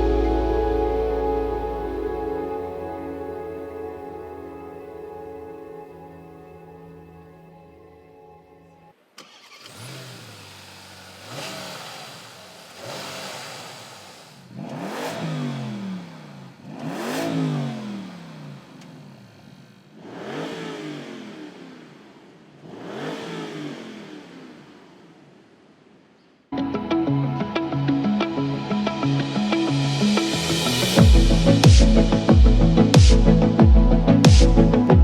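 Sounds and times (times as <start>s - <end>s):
car engine starting and revving: 9.0s - 26.1s.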